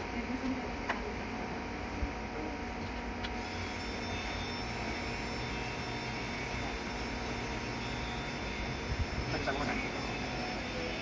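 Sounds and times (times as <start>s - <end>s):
faint high whine: 3.3s - 11.0s
machine drone: 3.4s - 11.0s.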